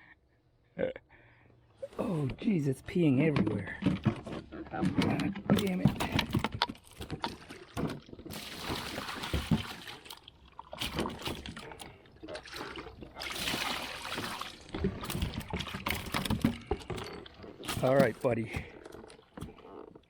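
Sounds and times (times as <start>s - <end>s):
water splashing: 7.0s - 16.6s.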